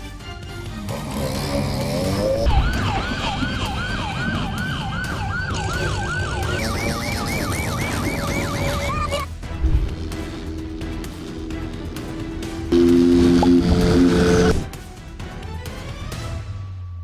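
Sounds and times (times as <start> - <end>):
emergency siren yelping: 2.4 - 9.3, 12.7 - 14.7.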